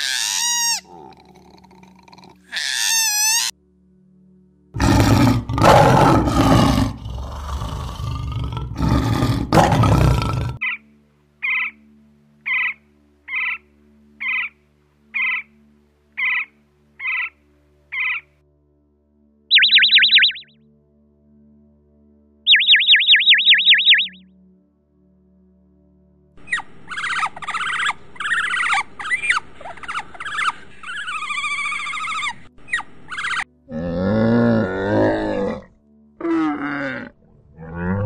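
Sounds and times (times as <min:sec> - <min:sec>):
lion roaring: 0:04.8 - 0:10.6, 0:33.7 - 0:38.0
woodpecker calls: 0:12.5 - 0:13.6, 0:15.2 - 0:15.5, 0:16.2 - 0:17.3, 0:17.9 - 0:18.2, 0:19.5 - 0:20.5, 0:22.5 - 0:24.2, 0:26.5 - 0:33.5
high bird trills: 0:19.5 - 0:20.5, 0:22.5 - 0:24.2, 0:26.5 - 0:33.5.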